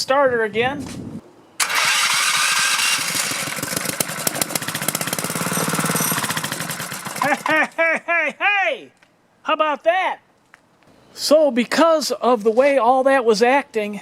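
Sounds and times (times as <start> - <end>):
man speaking: 0.0 - 0.8, 8.2 - 10.2, 11.2 - 14.0
small engine running roughly: 1.6 - 7.6
electric starter cranking: 1.6 - 7.8.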